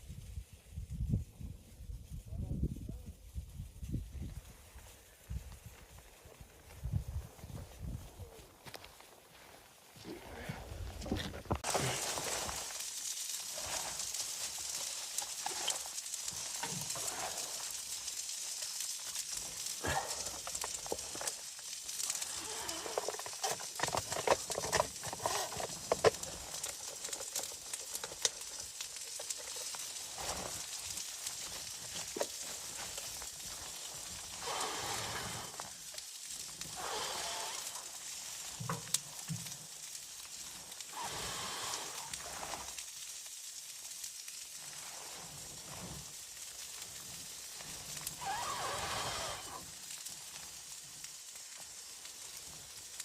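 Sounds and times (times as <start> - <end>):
wood fire crackling and hissing: 0.0 - 53.0.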